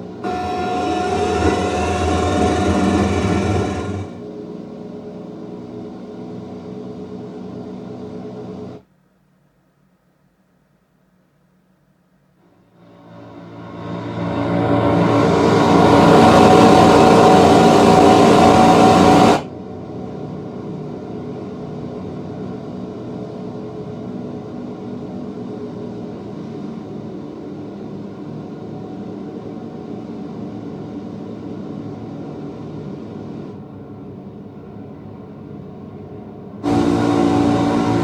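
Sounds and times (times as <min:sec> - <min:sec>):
mechanical drone soundtrack: 0:00.2 - 0:04.2, 0:36.6 - 0:38.0.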